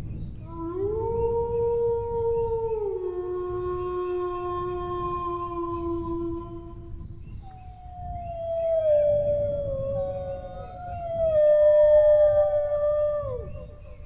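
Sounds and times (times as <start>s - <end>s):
dogs howling: 7.8s - 14.0s.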